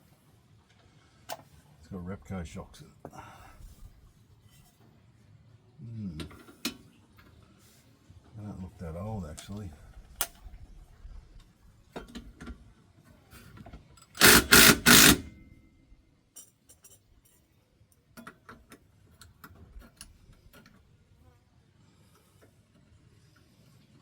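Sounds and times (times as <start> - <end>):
impact wrench hammering: 14.2 - 15.4.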